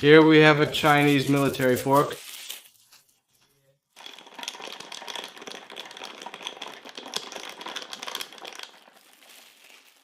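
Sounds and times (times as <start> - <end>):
plastic packaging crinkling: 0.8 - 3.5, 8.4 - 10.0.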